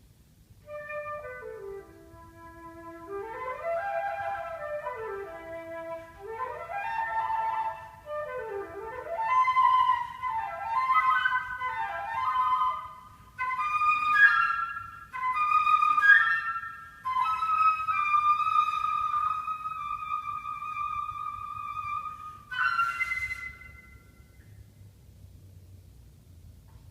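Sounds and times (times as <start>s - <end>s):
solo flute playing: 0.6s - 24.6s.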